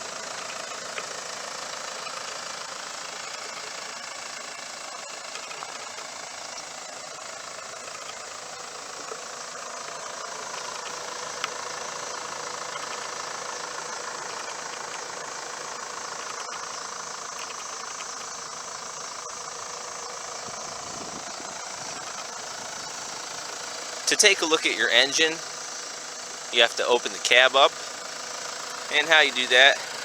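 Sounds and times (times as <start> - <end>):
diesel engine idling: 7.8 - 30.0.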